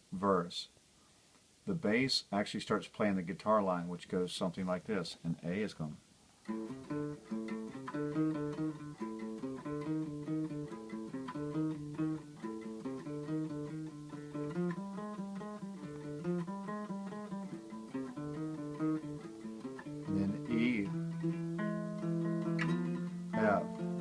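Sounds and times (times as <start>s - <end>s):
bass guitar riff: 6.5s - 24.0s.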